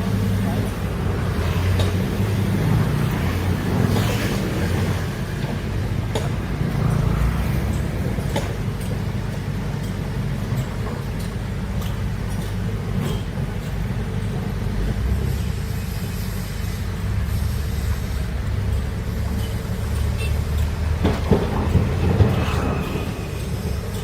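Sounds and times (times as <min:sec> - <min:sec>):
excavator diesel engine droning: 0:00.0 - 0:12.3, 0:12.9 - 0:24.0.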